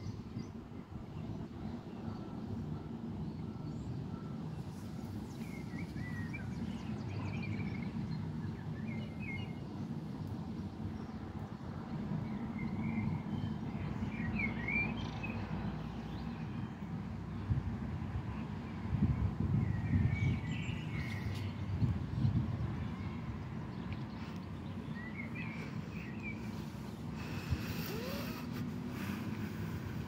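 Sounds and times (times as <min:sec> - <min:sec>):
low outdoor rumble: 0:16.8 - 0:30.0
small birds chirping: 0:19.7 - 0:30.0.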